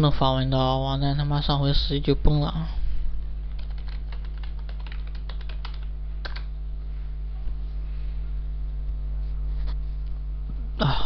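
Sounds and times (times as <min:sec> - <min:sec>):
low electrical hum: 0:00.0 - 0:11.0
computer keyboard typing: 0:03.5 - 0:06.5.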